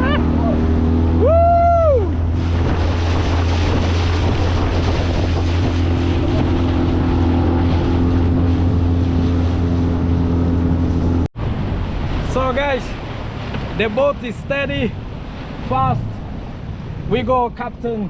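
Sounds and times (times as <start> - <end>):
person shouting: 0.0 - 0.6, 1.2 - 2.2
wind on microphone: 0.0 - 12.3
outboard motor running: 0.0 - 13.9
water rushing past: 0.0 - 18.0.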